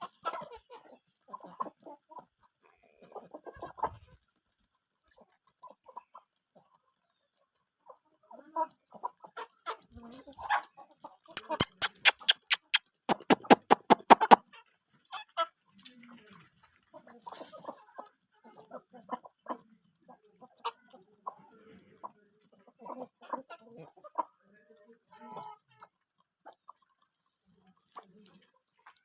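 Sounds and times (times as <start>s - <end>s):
chickens clucking: 0.0s - 29.0s
quick sharp taps: 11.4s - 14.4s.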